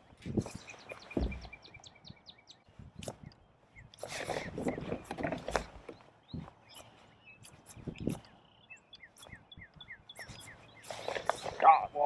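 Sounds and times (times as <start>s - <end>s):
bird singing falling notes: 0.0s - 12.0s
soft knocks: 1.2s - 1.6s.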